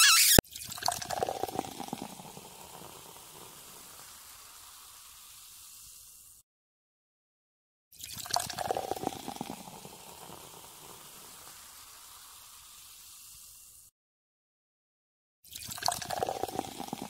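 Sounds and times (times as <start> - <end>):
liquid bubbling and gurgling: 0.5 - 4.0, 8.0 - 11.4, 15.5 - 17.0
fizzing hiss: 2.7 - 6.4, 10.2 - 13.9.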